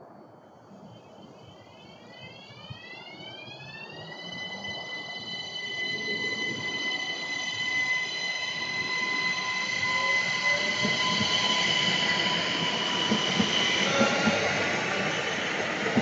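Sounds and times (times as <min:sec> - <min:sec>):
train high-pitched whine: 0:00.0 - 0:16.0
train wheels rumbling: 0:03.8 - 0:16.0.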